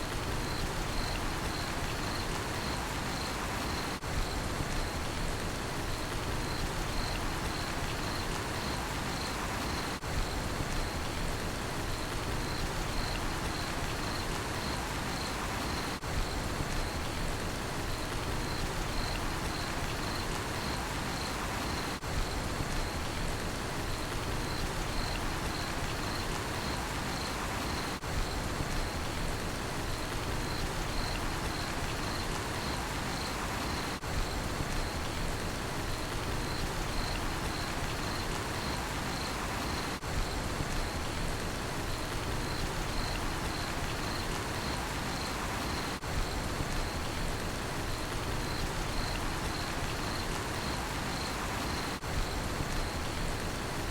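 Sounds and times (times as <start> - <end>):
steady rain falling: 0.0 - 53.9
cricket chirping: 0.2 - 5.1, 5.9 - 11.2, 12.0 - 17.2, 17.8 - 23.1, 23.9 - 29.2, 30.0 - 35.2, 35.9 - 40.2, 41.8 - 53.9.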